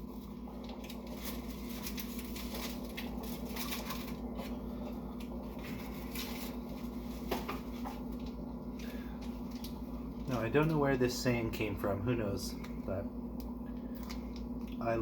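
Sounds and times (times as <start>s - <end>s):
steady low hum: 0.0s - 15.0s
wet chewing and smacking: 12.6s - 14.8s.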